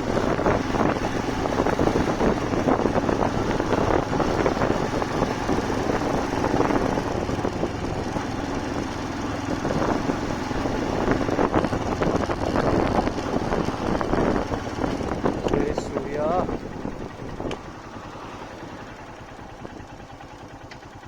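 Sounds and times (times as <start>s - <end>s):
motorcycle engine running: 0.0s - 21.0s
road noise: 0.0s - 21.0s.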